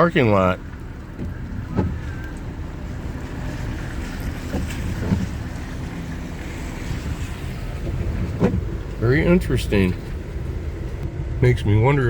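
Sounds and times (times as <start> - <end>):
car cabin road and engine rumble: 0.0 - 12.0.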